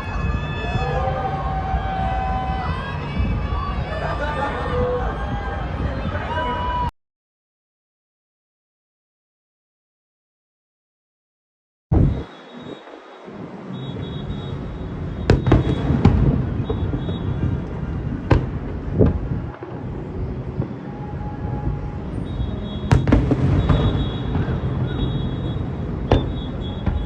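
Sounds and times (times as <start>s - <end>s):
fireworks rumbling: 0.0s - 6.8s, 11.9s - 27.0s
loud fireworks bangs: 13.7s - 27.0s.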